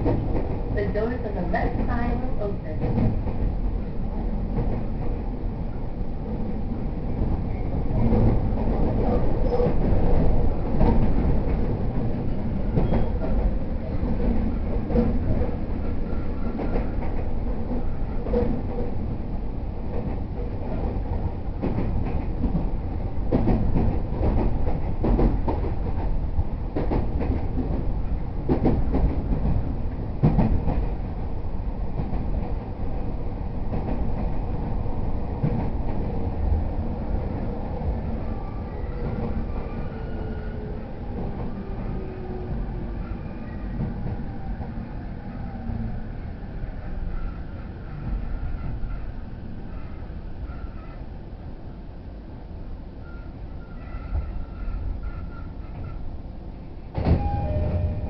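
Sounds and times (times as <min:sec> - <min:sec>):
train wheels rumbling on rail: 0:00.0 - 0:58.0
track clicks and knocks: 0:56.9 - 0:58.0.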